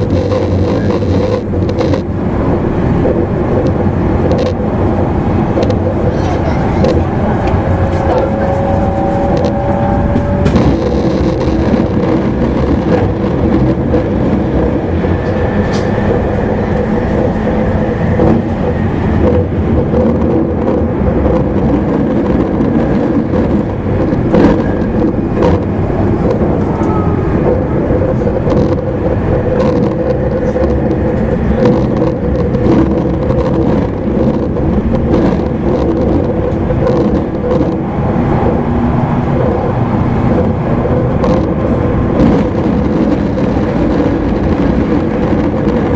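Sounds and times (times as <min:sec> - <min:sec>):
train motor hum: 0:00.0 - 0:22.0
rail joint clicks: 0:00.0 - 0:45.9
wheel-on-rail rumble: 0:00.0 - 0:45.9.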